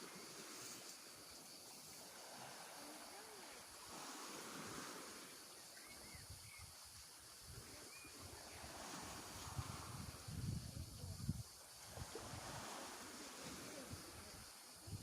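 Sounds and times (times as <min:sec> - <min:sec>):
wind buffeting microphone: 0:07.4 - 0:12.8, 0:13.9 - 0:15.0.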